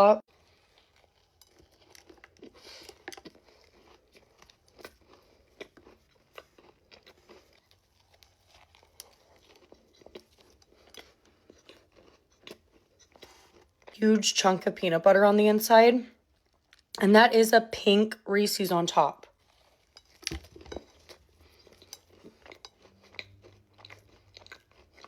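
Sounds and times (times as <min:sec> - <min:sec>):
person chewing cookie: 0:00.3 - 0:14.0, 0:16.2 - 0:17.0, 0:19.2 - 0:25.0.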